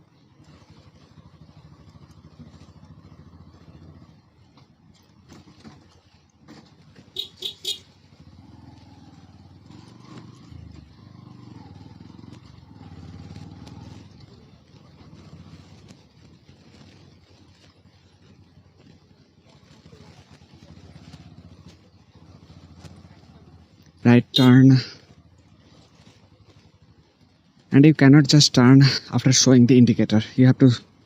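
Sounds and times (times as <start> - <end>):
motorcycle engine at low speed: 0.0 - 31.0
horn short beeps: 7.2 - 7.9.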